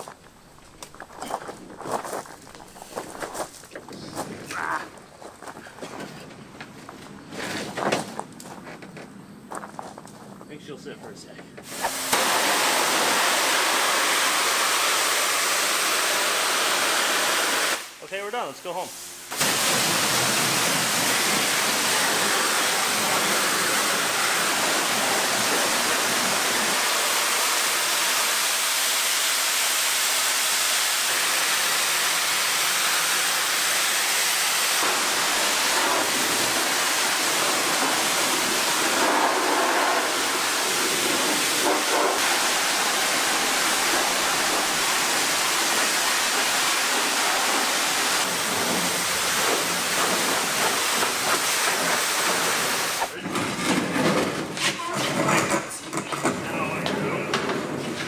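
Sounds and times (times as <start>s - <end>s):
pressure washer spraying water: 11.6s - 18.0s, 18.7s - 53.2s.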